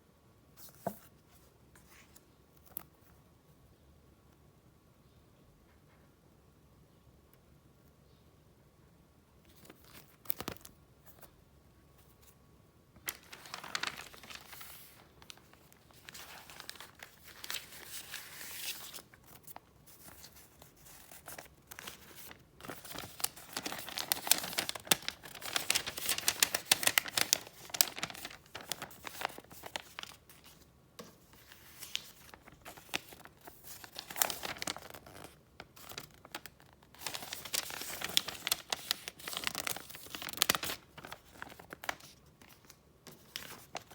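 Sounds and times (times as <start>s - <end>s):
wrapping paper crinkling: 13.0s - 43.9s.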